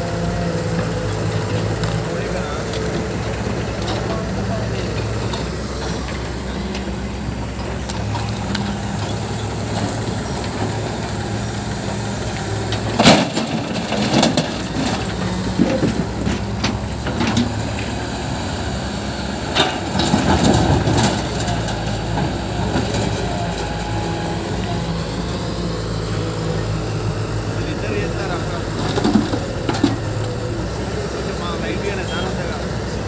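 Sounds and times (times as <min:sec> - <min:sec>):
diesel engine under load: 0:00.0 - 0:33.0
sharp knocks and scraping crunches: 0:12.3 - 0:17.9.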